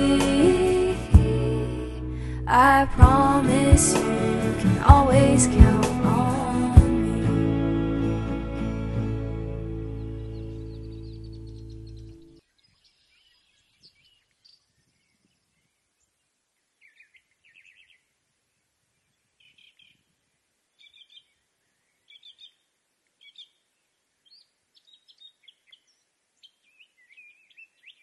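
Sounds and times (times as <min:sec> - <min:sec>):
faint birdsong chirps and trills: 0:09.8 - 0:28.0.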